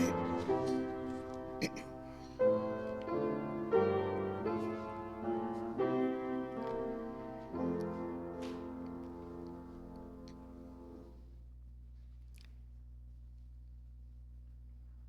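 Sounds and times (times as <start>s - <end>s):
piano playing slow chords: 0.0s - 11.2s.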